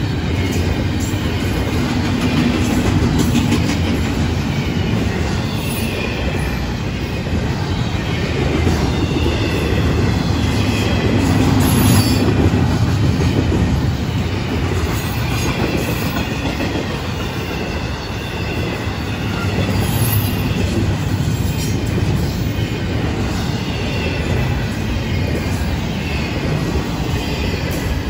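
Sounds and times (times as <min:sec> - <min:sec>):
freight train wheels rumbling: 0:00.0 - 0:28.0
faint high wheel squeals: 0:07.6 - 0:12.4, 0:13.9 - 0:28.0.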